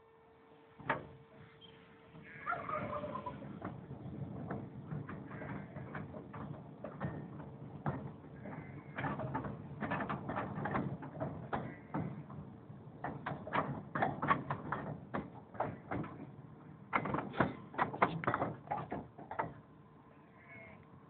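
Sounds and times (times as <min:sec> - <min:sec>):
train wheels clicking and clanking: 0:03.0 - 0:16.3, 0:16.9 - 0:19.6.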